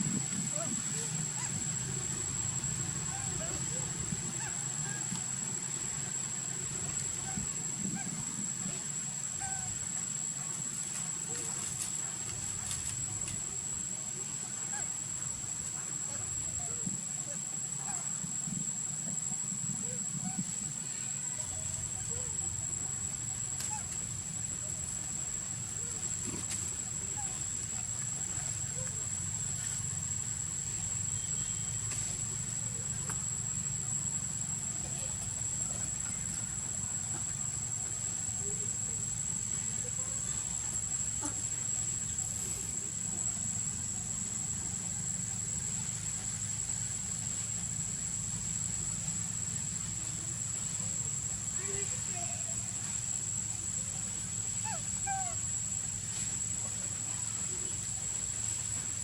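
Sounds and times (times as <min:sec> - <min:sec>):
constant low rumble: 0:00.0 - 0:59.0
high-pitched insect whine: 0:00.0 - 0:59.0.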